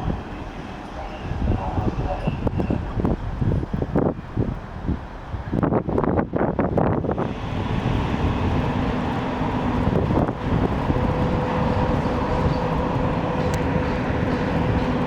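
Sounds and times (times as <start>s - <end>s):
train rumbling: 0.0s - 15.0s
wind buffeting microphone: 0.0s - 15.0s.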